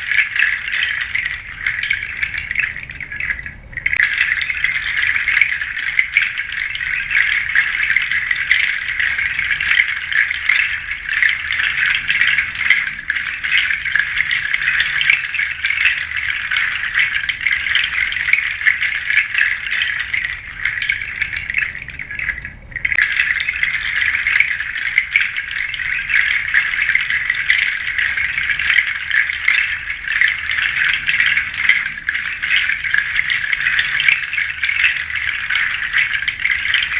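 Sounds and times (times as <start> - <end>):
seed shaker rattling: 0.0 - 36.9.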